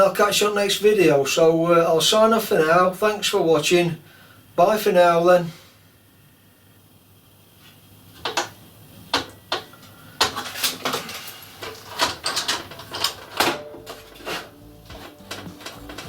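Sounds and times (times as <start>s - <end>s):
sharp knocks and clatters: 8.2s - 16.0s.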